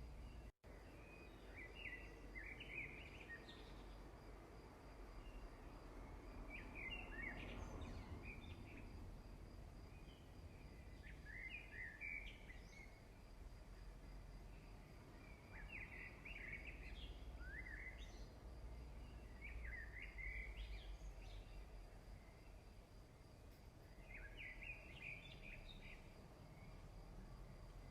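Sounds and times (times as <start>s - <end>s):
bird chirping faintly: 14.3s - 27.9s.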